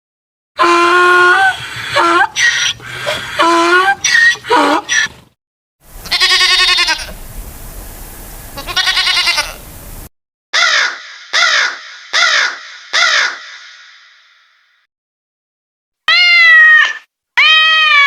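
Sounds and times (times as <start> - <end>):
steady hiss: 5.8 - 10.1
wavering bleats: 6.0 - 7.1, 8.6 - 9.6
short falling calls: 10.6 - 14.6.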